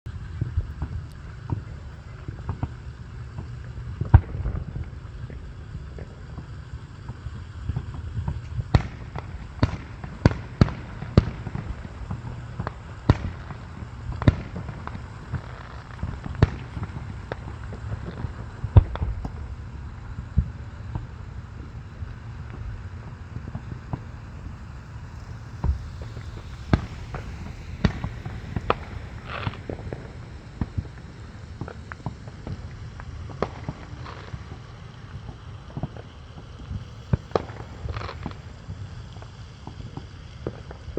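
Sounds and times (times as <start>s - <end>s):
fireworks bangs: 0.2s - 40.8s
low rumble: 7.7s - 35.1s.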